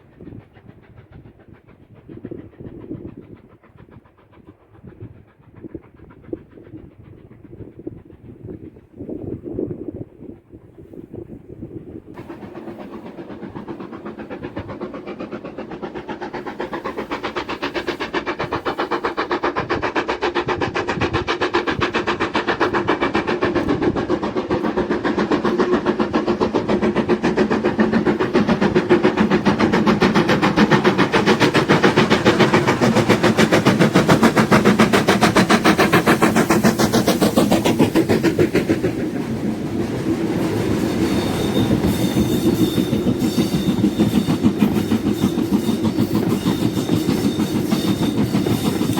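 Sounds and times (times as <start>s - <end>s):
steam train passing: 0.0s - 48.9s
rail clatter: 12.2s - 48.9s.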